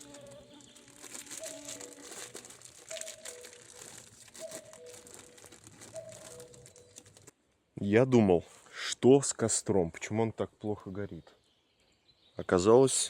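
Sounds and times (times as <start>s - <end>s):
crackles and rustling: 0.0s - 7.4s.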